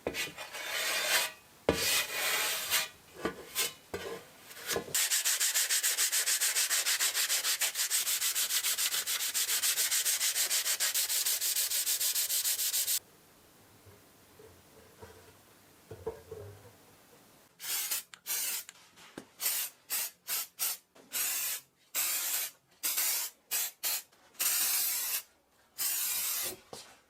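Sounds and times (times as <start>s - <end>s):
sanding metal by hand: 5.0s - 13.0s.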